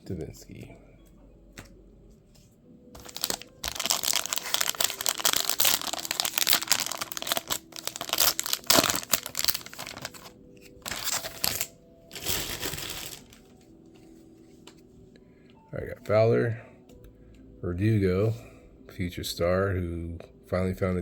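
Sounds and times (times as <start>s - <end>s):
wrapper crinkling and tearing: 3.0s - 13.6s.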